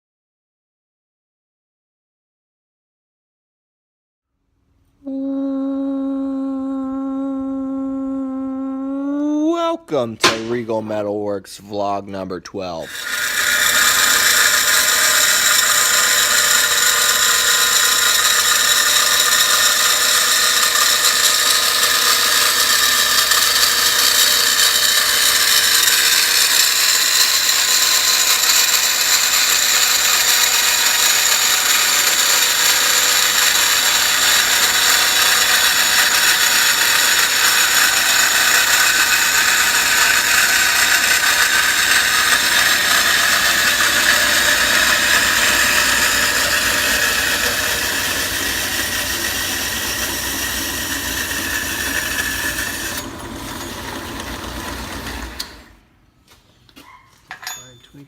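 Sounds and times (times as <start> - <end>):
machine tool whining: 12.8 - 55.9.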